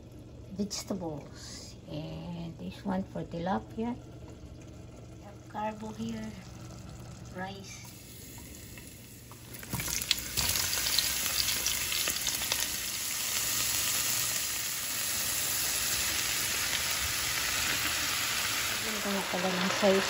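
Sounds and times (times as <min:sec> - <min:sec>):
onions crackling into hot oil: 0:05.5 - 0:20.0
onions sizzling in frying pan: 0:07.9 - 0:20.0.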